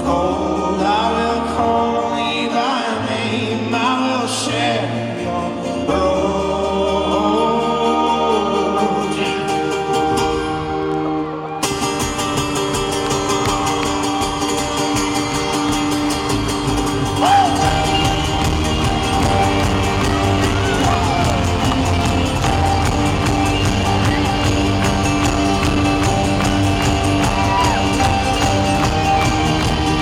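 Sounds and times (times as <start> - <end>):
folk-rock band playing live: 0.0 - 30.0
audience whooping and shouting: 10.3 - 30.0.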